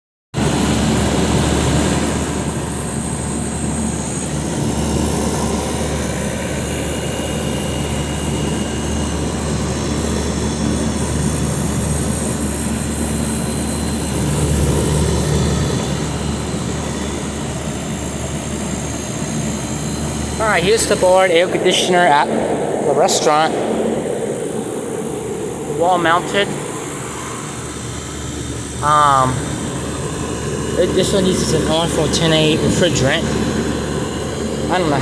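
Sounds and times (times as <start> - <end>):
fan air rushing: 0.4 - 35.0
air conditioner hum: 19.4 - 35.0.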